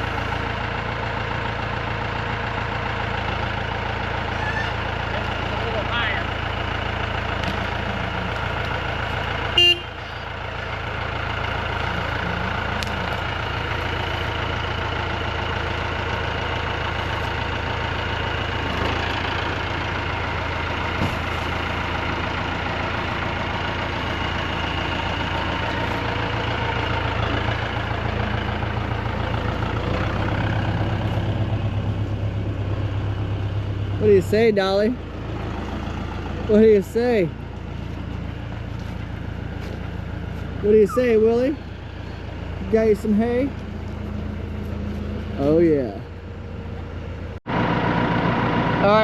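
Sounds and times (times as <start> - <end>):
vehicle engine running: 0.0 - 49.0
horn toot: 9.5 - 10.0.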